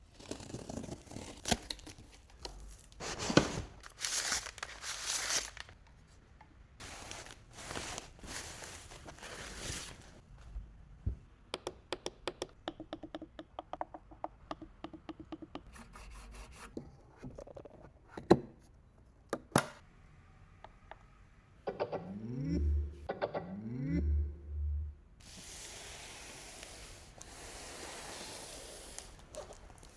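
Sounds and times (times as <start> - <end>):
packaging tearing and rustling: 0.1 - 5.8.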